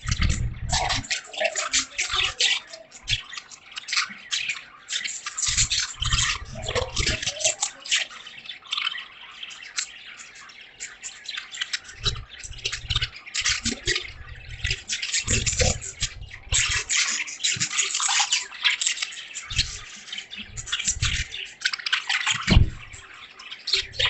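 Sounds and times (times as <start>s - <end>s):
heavy drops thudding: 22.5s - 23.0s.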